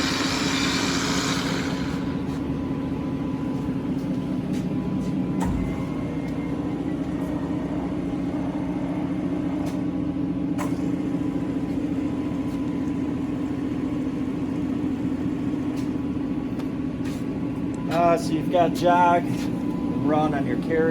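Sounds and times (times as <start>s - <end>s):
lathe motor humming: 0.0s - 9.6s.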